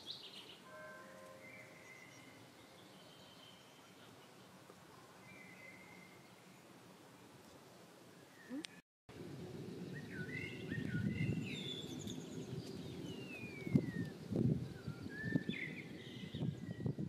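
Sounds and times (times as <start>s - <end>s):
birds chirping and whistling: 9.8s - 17.0s
long falling bird whistle: 9.9s - 12.2s, 13.0s - 17.0s.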